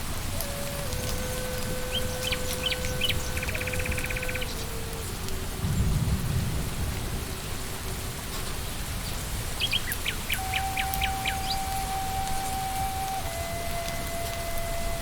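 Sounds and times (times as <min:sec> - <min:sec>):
steady rain in forest: 0:00.0 - 0:15.0
bird chirps: 0:01.8 - 0:04.7, 0:09.6 - 0:12.6
low rumble of thunder: 0:03.8 - 0:10.3.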